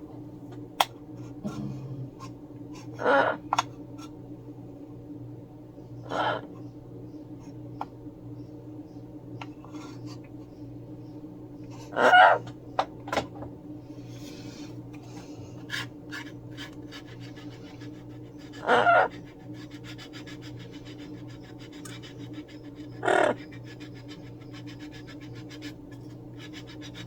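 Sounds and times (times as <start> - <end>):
faint rapid scratching: 15.6 - 27.0
parrot squawks: 18.6 - 19.1.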